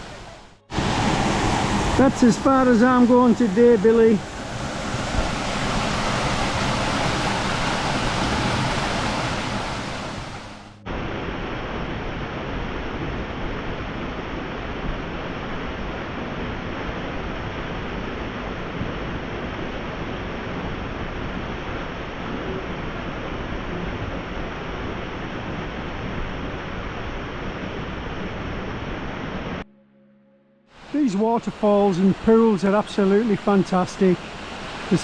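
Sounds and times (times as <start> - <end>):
small waterfall rushing: 0.0 - 10.7, 30.8 - 35.0.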